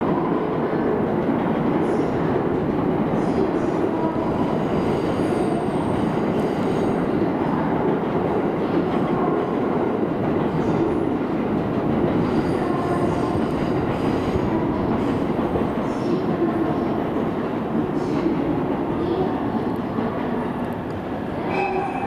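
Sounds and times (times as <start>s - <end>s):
train running on track: 0.0s - 22.0s.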